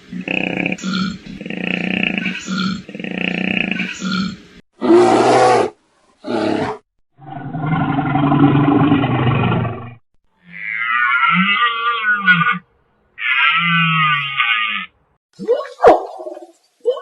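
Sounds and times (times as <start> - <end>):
large animal roaring: 0.2 - 12.6.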